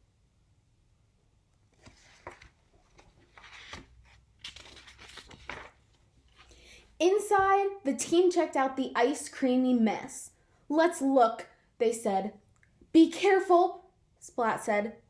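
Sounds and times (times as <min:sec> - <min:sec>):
paper rustling: 0:01.7 - 0:06.6.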